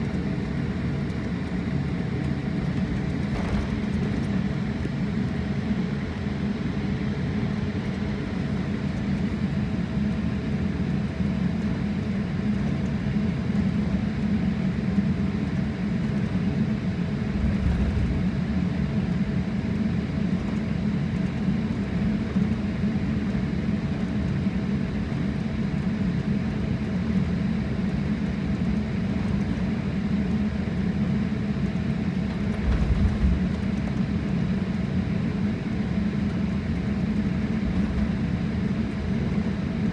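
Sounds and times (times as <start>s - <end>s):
airliner cabin engine hum: 0.0s - 39.9s
low bumps: 17.3s - 18.6s, 32.3s - 34.0s.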